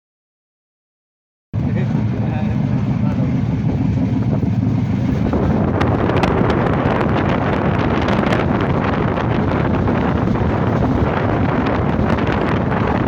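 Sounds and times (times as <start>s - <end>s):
train rumbling: 1.6s - 13.0s
wind on microphone: 1.6s - 13.0s.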